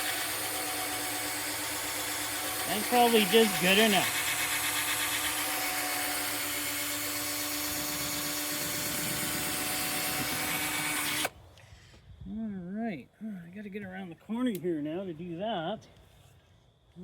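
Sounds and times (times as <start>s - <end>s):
cordless drill running: 0.0s - 11.3s.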